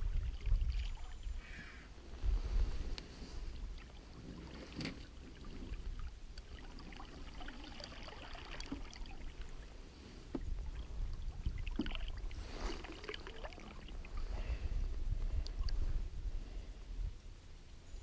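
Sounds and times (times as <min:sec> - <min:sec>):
wind rumble on microphone: 0:00.0 - 0:06.4, 0:09.2 - 0:18.0
water lapping against boat: 0:03.3 - 0:14.6.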